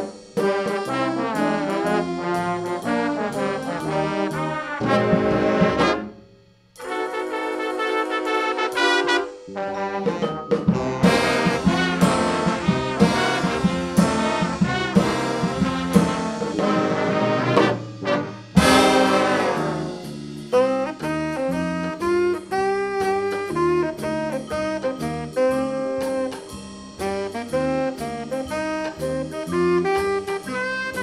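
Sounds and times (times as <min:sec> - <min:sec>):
brass band playing jazzy tune: 0:00.0 - 0:06.2, 0:06.8 - 0:31.0
loud accented band hit: 0:00.0 - 0:23.6.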